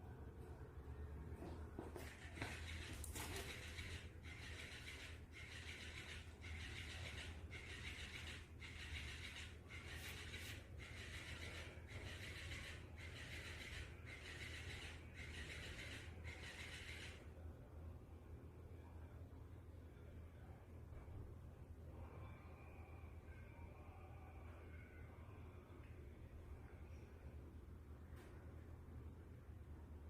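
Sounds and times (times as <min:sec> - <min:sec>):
steady low hum: 0:00.0 - 0:30.0
toy motor buzzing: 0:02.1 - 0:17.2.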